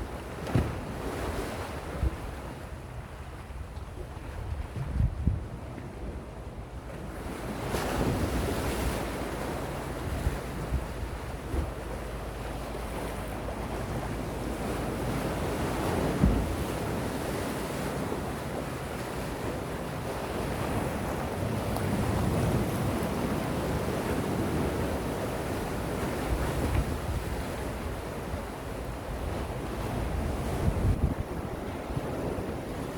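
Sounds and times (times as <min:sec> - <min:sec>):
wind rumbling on microphone: 0:00.0 - 0:32.9
sea waves washing onto shore: 0:07.0 - 0:32.9.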